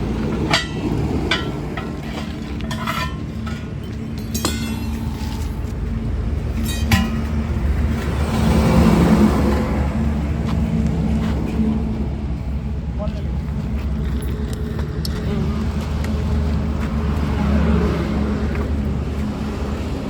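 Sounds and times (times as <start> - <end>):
low engine hum: 0.0 - 20.0
metal tools striking truck wheel: 0.1 - 5.8, 6.5 - 7.8.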